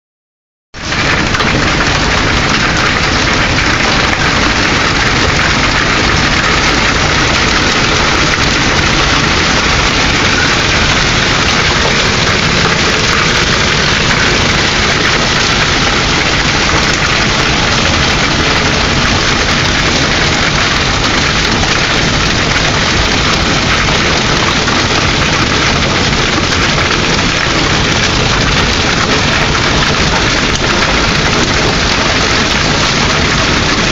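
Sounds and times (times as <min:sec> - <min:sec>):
hail and rain pelting: 0:00.8 - 0:33.9.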